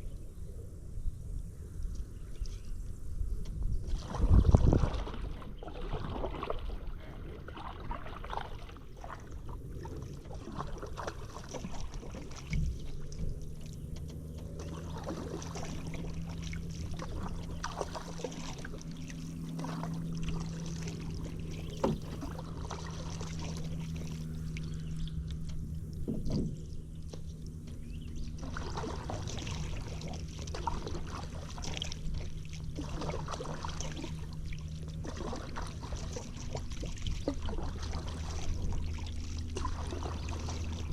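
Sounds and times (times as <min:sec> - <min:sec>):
low steady hum: 0:00.0 - 0:40.9
paddle splashing water: 0:03.4 - 0:40.9
paddle knocking against kayak: 0:19.5 - 0:33.9.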